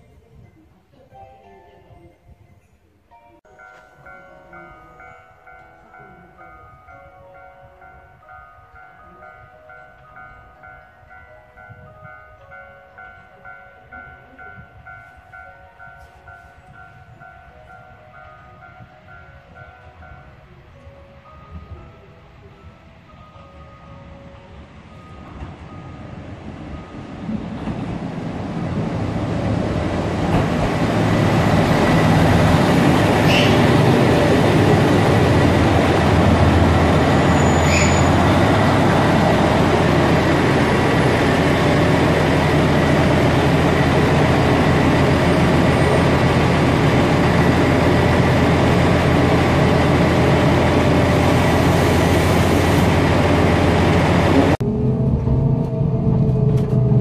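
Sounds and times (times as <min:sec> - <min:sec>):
diesel train engine drone: 0:09.0 - 0:57.0
high train squeals: 0:31.3 - 0:47.4.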